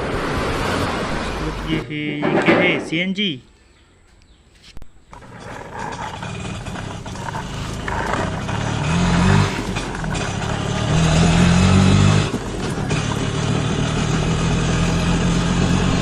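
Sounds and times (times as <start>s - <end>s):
vehicle engine running: 5.2s - 16.0s.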